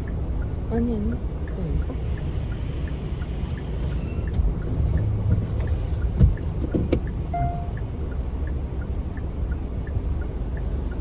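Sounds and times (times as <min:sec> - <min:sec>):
car engine low rumble: 0:00.0 - 0:11.0
faint repeating beep: 0:07.3 - 0:07.8.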